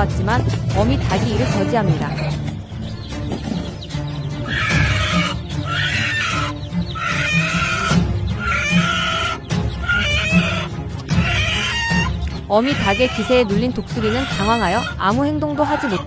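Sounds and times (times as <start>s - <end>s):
background music with steady beat: 0.0s - 16.0s
harsh bird squawks: 1.4s - 16.0s.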